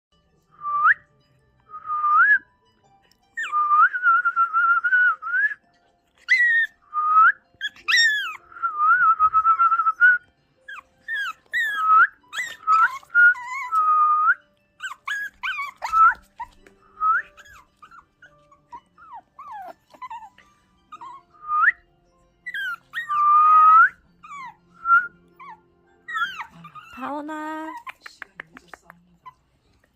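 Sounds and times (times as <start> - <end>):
person whistling: 1.7 - 2.4, 3.4 - 5.6, 6.9 - 7.4, 8.5 - 10.2, 11.8 - 14.4, 16.9 - 17.4, 21.0 - 21.8, 23.0 - 24.0, 24.8 - 25.2
puppy whimpering: 3.3 - 3.6, 6.2 - 6.8, 7.6 - 8.6, 10.7 - 21.8, 22.4 - 28.2.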